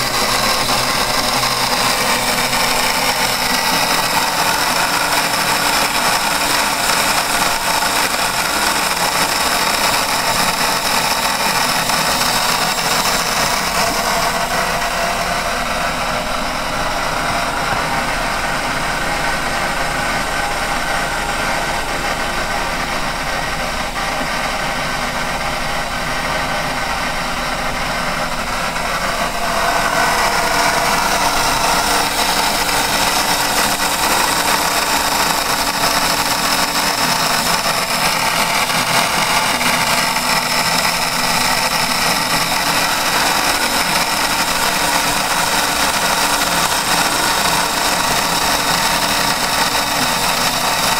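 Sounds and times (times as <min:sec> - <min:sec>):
lathe turning wood: 0:00.0 - 0:50.9.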